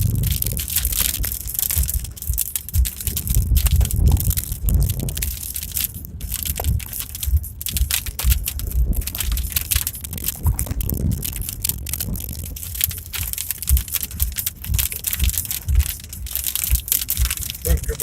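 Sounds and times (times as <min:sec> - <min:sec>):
car rattling on rough road: 0:00.0 - 0:18.0
low thumps: 0:00.0 - 0:18.0.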